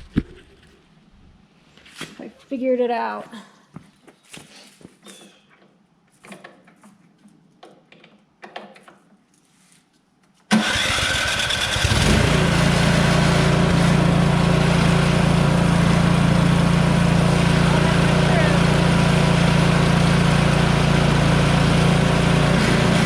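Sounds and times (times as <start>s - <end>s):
snow thrower engine running: 10.5s - 23.0s.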